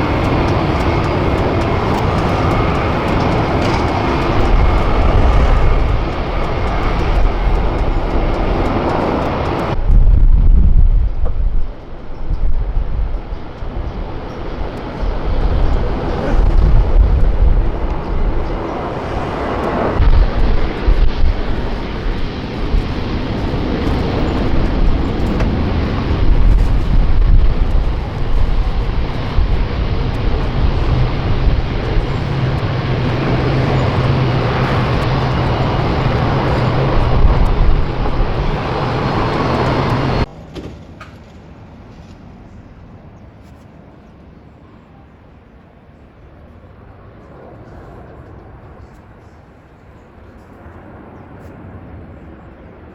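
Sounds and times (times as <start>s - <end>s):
steady low hum: 0.0s - 40.5s
jet engines roaring: 0.0s - 52.9s.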